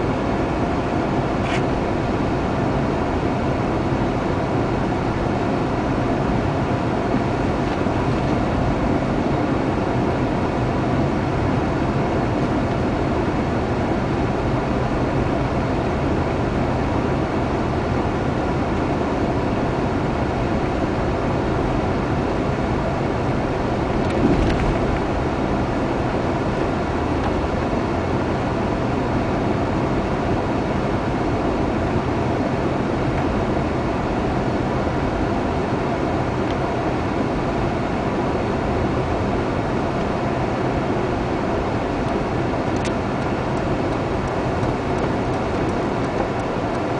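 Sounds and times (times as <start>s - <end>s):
car road and engine noise: 0.0s - 46.9s
short thump: 24.1s - 25.0s.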